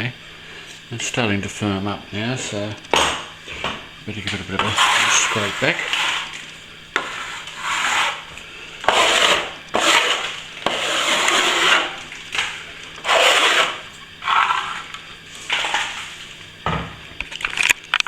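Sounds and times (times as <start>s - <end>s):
blade scraping plaster: 4.4s - 16.2s.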